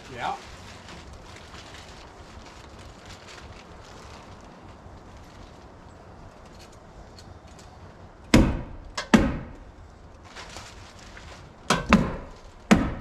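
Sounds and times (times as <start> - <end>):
hammer striking wood: 8.3 - 9.6, 11.7 - 13.0.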